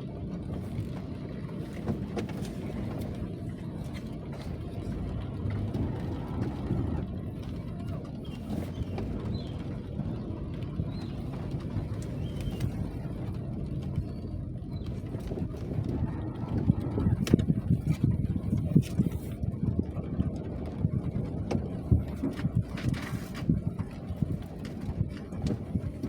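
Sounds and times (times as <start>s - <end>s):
steady rain: 0.0s - 18.8s.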